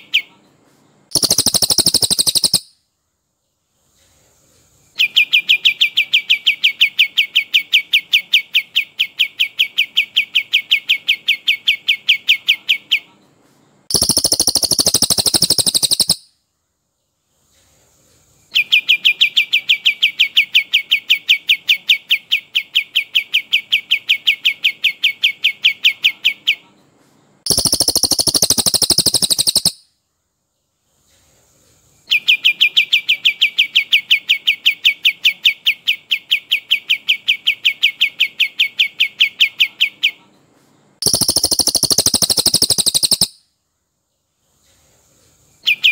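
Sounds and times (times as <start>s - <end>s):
bird song rapid repeated notes: 1.1s - 2.7s, 13.9s - 16.3s, 27.5s - 29.8s, 41.0s - 43.4s.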